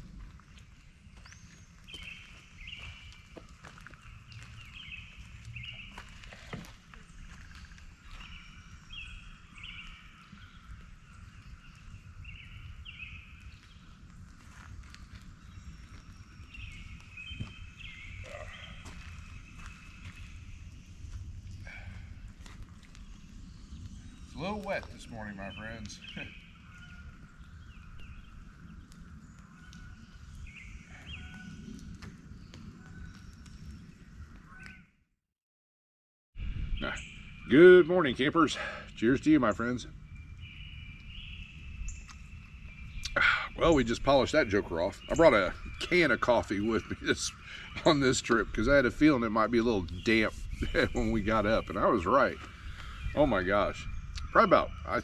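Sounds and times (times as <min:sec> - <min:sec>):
birds chirping and whistling: 0:00.2 - 0:34.9, 0:36.4 - 0:55.0.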